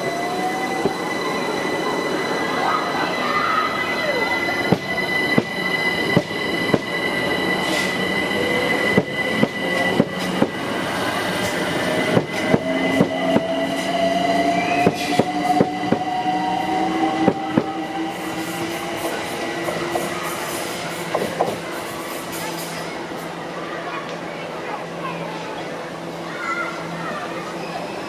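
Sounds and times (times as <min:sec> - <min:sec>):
high wheel squeal: 0:00.0 - 0:21.1
train wheels clicking over joints: 0:04.6 - 0:14.0.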